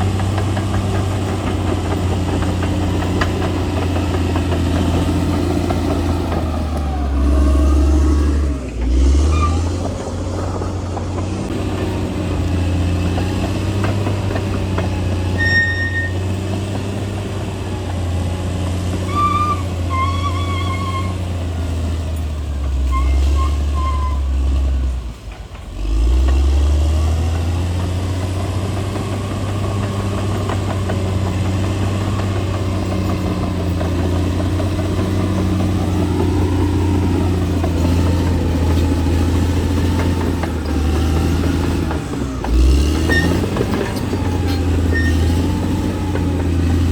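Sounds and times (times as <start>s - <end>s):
bulldozer diesel engine running: 0.0s - 46.9s
short high squeaks: 9.0s - 10.0s, 15.3s - 16.3s, 19.0s - 21.3s, 22.8s - 24.4s, 43.0s - 45.5s.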